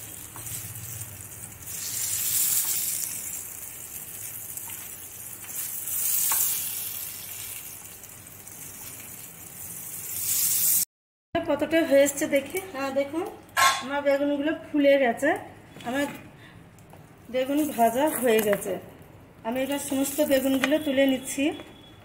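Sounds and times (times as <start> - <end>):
eggplant sizzling in a frying pan: 0.0 - 10.9, 19.5 - 20.9.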